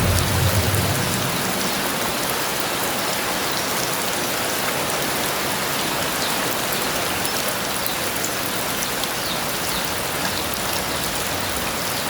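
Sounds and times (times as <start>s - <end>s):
heavy rain hissing: 0.0s - 3.4s.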